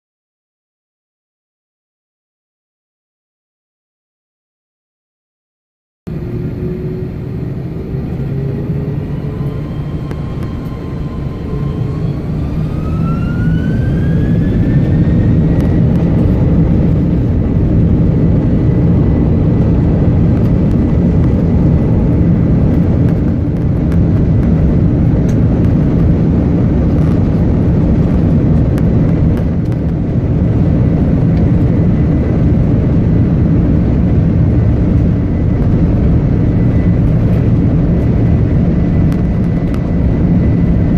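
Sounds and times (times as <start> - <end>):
jet engines spooling up: 6.1 - 40.9.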